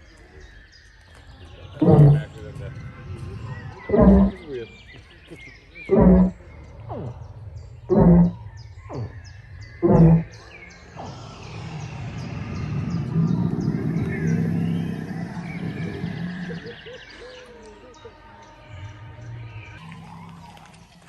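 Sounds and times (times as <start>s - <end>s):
birds chirping: 0.0s - 21.0s
long dinosaur roar: 1.7s - 4.7s, 5.8s - 17.6s.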